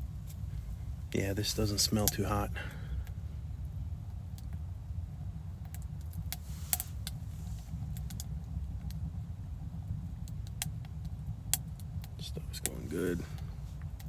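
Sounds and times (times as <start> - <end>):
light clicks and taps: 1.7 - 2.4, 5.6 - 7.2, 10.2 - 14.0.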